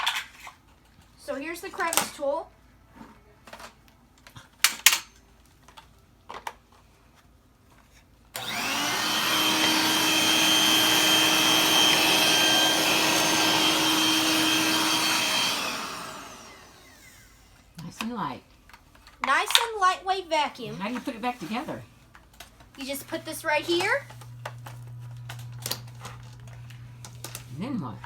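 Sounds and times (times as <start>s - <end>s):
stick vacuum whining: 8.4s - 17.7s, 22.8s - 28.0s.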